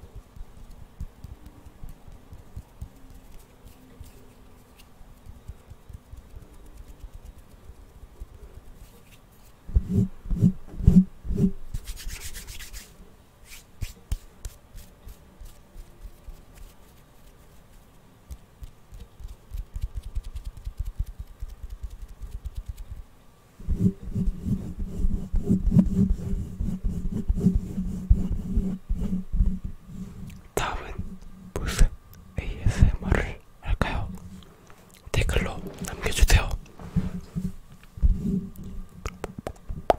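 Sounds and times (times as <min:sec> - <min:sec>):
close rubbing: 0:08.6 - 0:18.0.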